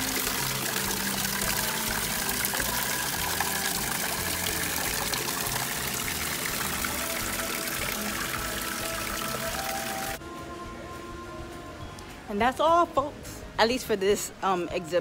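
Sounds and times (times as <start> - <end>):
pouring water: 0.0 - 10.2
music playing: 0.0 - 15.0.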